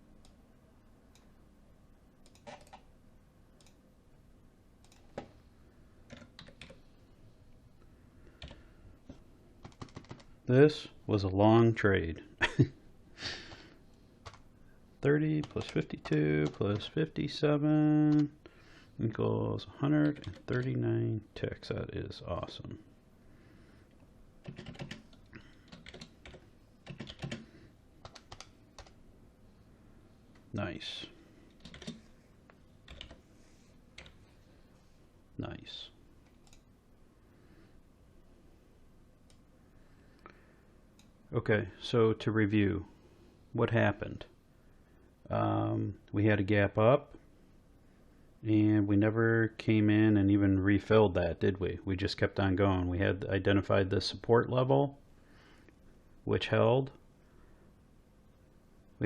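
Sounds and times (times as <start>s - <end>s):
keyboard and mouse clicks: 2.2s - 2.9s, 4.8s - 5.3s, 8.4s - 10.3s, 28.0s - 29.0s, 31.5s - 32.0s
computer keyboard typing: 2.3s - 2.9s, 4.8s - 5.3s, 6.1s - 6.8s, 8.4s - 8.6s, 9.6s - 10.3s, 14.2s - 14.4s, 15.4s - 16.9s, 20.1s - 20.7s, 24.4s - 29.0s, 31.5s - 32.0s, 32.8s - 33.2s, 34.0s - 34.2s.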